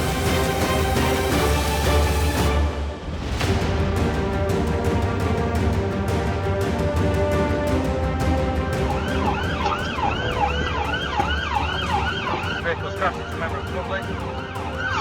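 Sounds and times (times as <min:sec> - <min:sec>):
background music: 0:00.0 - 0:15.0
police siren yelping: 0:08.8 - 0:15.0.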